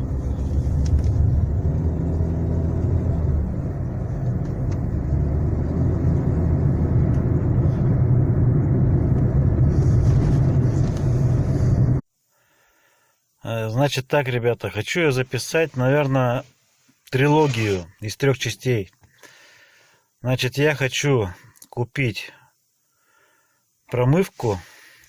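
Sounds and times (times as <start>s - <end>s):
car engine rumbling under load: 0.0s - 12.0s.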